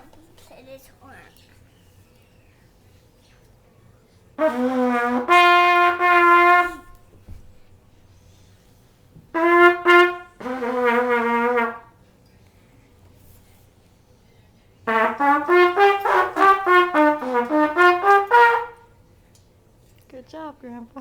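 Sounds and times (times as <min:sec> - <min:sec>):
brass horn long notes: 0:04.4 - 0:07.0, 0:09.3 - 0:12.0, 0:14.8 - 0:18.9.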